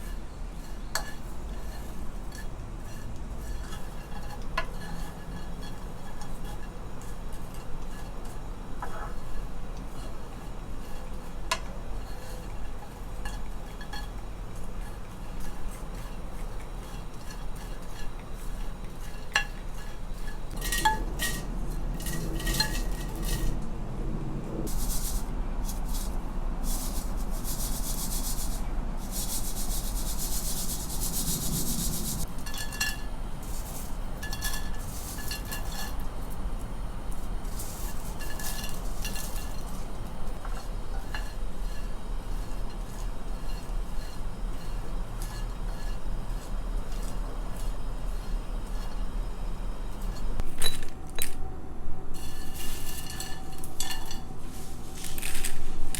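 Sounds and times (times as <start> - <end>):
root slices scraping in dry pan: 0.0 - 23.6, 37.1 - 50.4.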